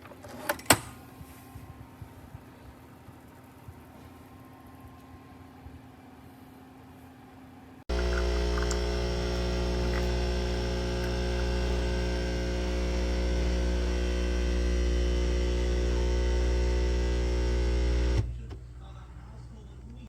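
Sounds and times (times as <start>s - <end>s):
coffee machine pump buzzing: 7.9s - 18.3s.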